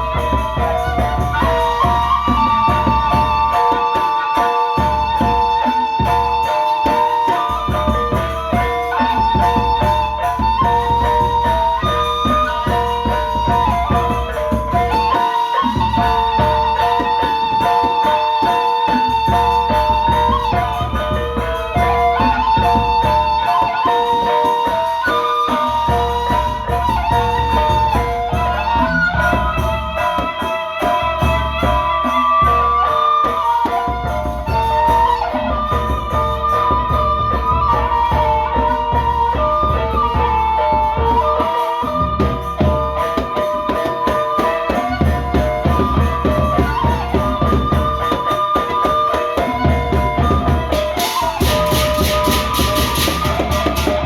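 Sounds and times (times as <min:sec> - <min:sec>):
drum strokes: 0:00.0 - 0:54.0
held melody: 0:00.0 - 0:54.0.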